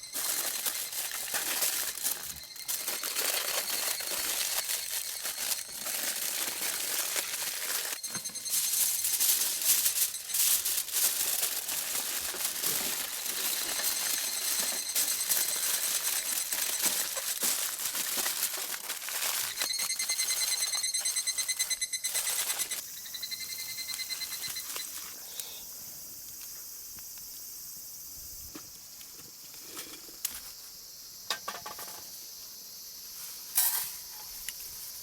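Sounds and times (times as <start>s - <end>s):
campfire crackling and sizzling: 0.0s - 22.8s.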